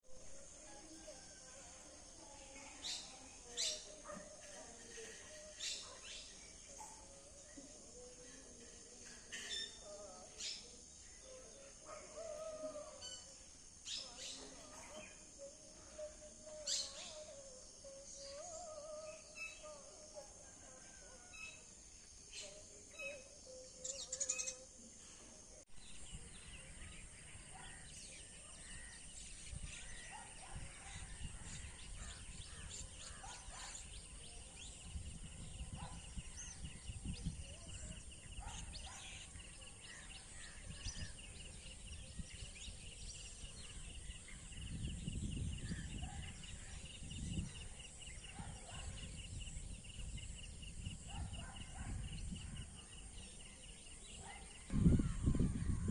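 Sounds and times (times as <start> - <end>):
high insect hum: 0.0 - 55.9
pulsing insect trill: 0.1 - 54.0
bird calls: 22.4 - 24.8, 25.8 - 55.9.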